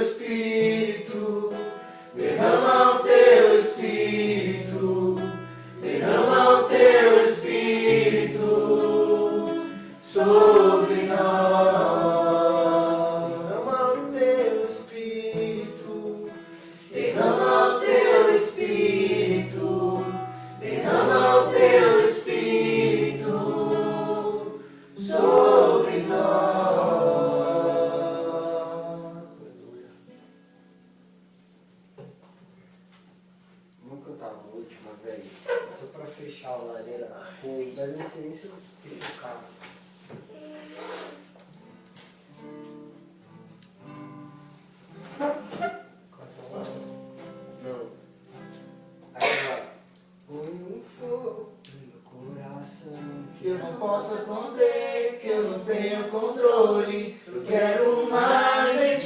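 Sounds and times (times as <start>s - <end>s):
group singing worship song: 0.0s - 29.8s, 53.2s - 59.0s
acoustic guitar strumming: 0.0s - 32.2s, 41.6s - 49.9s.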